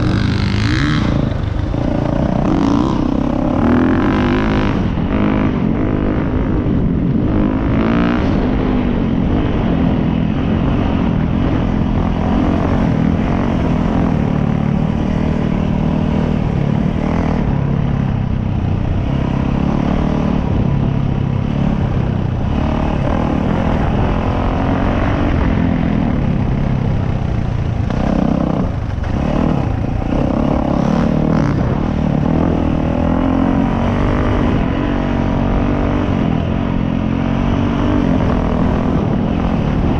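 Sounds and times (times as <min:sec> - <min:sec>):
dirt bike engine revving: 0:00.0 - 0:08.7, 0:27.7 - 0:39.9.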